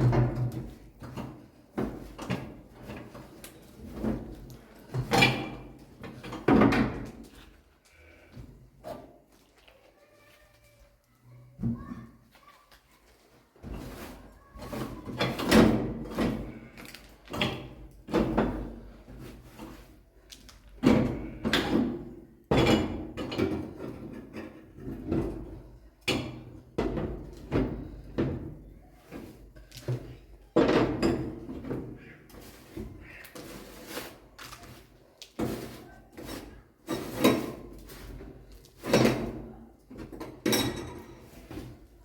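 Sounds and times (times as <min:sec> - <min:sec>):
scraping rustle: 0:12.4 - 0:15.1, 0:32.3 - 0:39.2.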